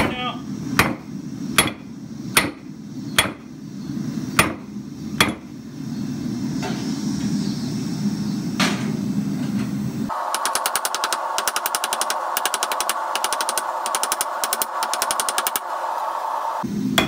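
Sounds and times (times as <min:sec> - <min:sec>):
hammer striking steel on anvil: 0:00.8 - 0:01.0, 0:01.6 - 0:01.8, 0:02.4 - 0:02.6, 0:03.2 - 0:03.4, 0:04.4 - 0:04.6, 0:05.2 - 0:05.5
steady low rush: 0:09.9 - 0:17.0.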